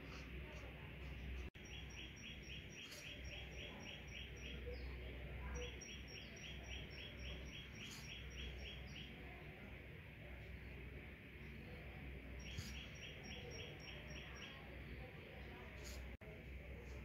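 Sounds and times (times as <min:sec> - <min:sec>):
small bird chirping: 0:01.1 - 0:09.3, 0:11.7 - 0:15.0.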